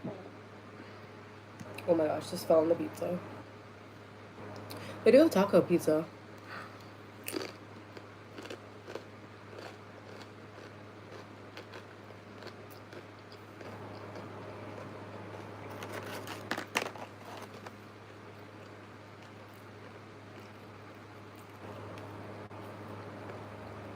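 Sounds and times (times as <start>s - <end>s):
crunchy bites and chewing: 7.2s - 17.8s.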